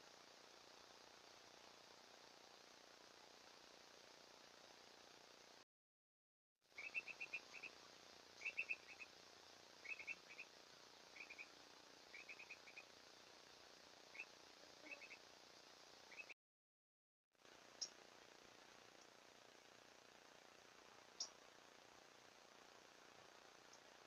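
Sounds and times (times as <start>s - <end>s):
bird chirping: 6.8s - 7.8s, 8.4s - 9.1s, 9.8s - 10.5s, 11.1s - 11.5s, 12.1s - 12.9s, 14.1s - 15.2s, 16.1s - 16.4s.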